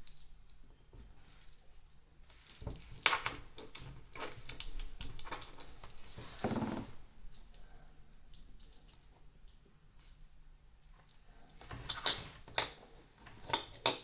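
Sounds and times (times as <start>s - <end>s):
plastic pieces rustling: 0.0s - 0.3s
plastic bricks clicking: 0.0s - 0.6s.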